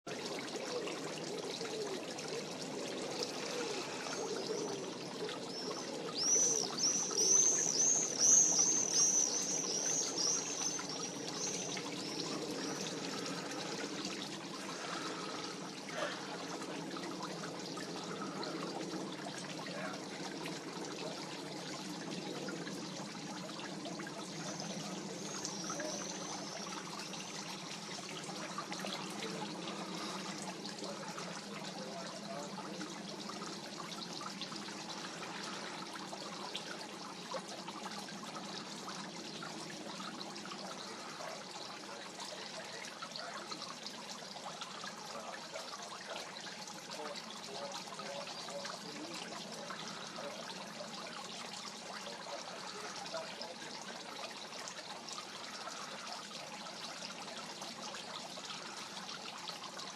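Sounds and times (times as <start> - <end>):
songbird chirping: 3.2 - 14.1.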